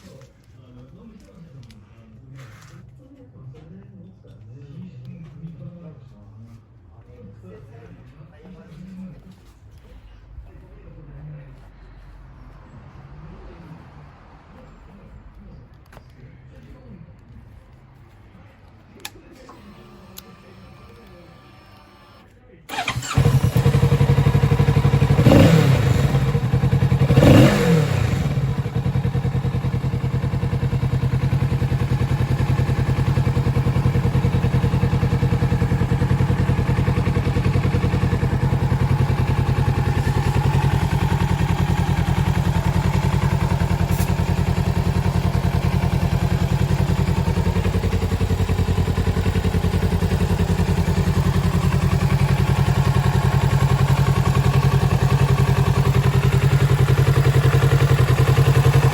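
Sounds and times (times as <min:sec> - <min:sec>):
motorcycle engine revving and idling: 0:22.7 - 0:58.9.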